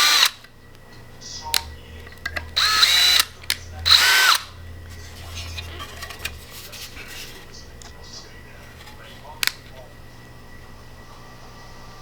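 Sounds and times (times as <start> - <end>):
power drill whining: 0.0 - 0.5, 2.6 - 4.6.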